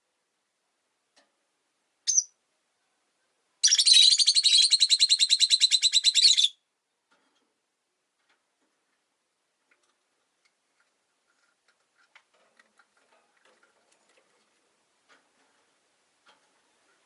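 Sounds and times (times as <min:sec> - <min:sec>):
lovebird chirping and chattering: 0:02.1 - 0:02.3, 0:03.6 - 0:06.6.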